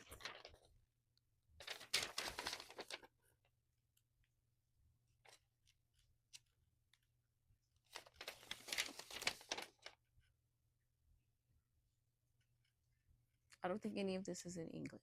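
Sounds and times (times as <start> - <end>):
paper rustling: 0.0 - 0.8, 1.6 - 3.4, 7.8 - 10.0.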